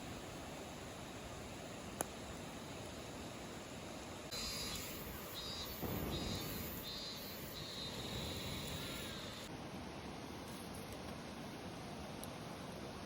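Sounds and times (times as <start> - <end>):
crickets chirping: 0.0 - 9.5
background hiss: 0.0 - 13.0.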